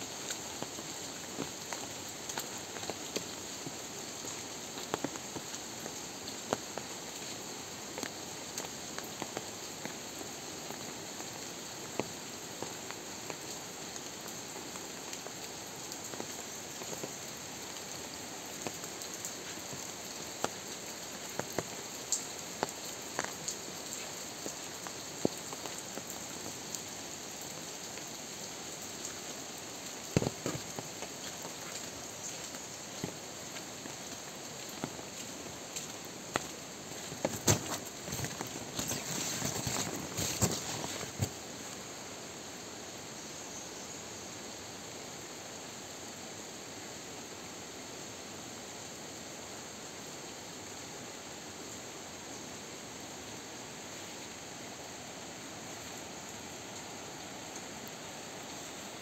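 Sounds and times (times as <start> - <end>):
rain falling: 0.0 - 59.0
water drips striking surfaces: 30.1 - 41.4.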